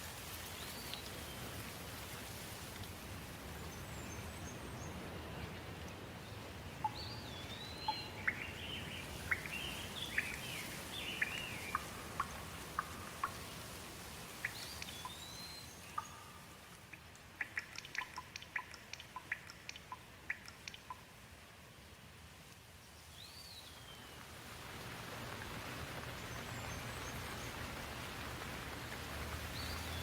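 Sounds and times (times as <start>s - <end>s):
steady rain: 0.0s - 30.0s
songbirds chirping and whistling: 6.8s - 13.5s, 14.4s - 16.4s.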